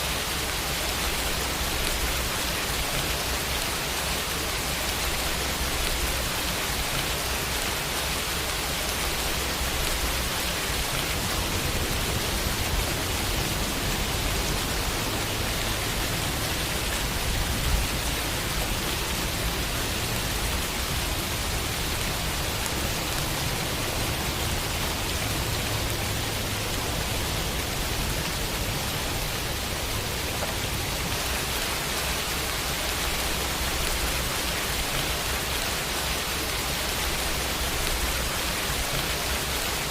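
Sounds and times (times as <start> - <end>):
rain on a window: 0.0 - 39.9.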